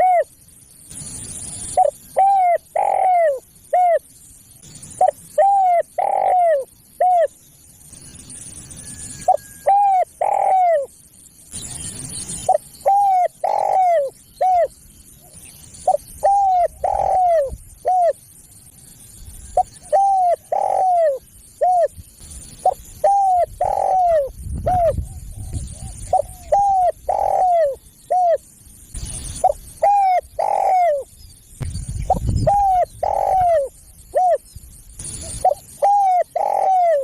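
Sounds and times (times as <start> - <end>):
dove cooing: 0.0 - 0.3, 1.7 - 4.0, 5.0 - 7.3, 9.2 - 10.9, 12.4 - 18.2, 19.6 - 21.9, 22.6 - 28.4, 29.4 - 31.1, 32.1 - 34.4, 35.2 - 37.0.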